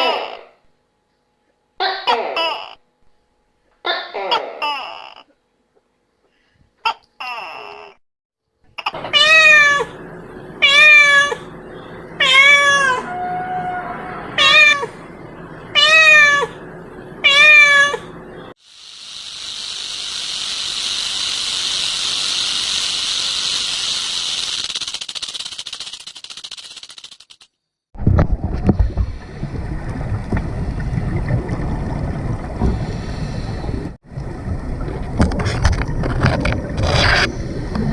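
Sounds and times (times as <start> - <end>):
cat meowing: 9.0 - 10.0, 10.6 - 11.5, 12.2 - 15.0, 15.8 - 16.6, 17.2 - 18.1
steady high hiss: 18.6 - 27.2.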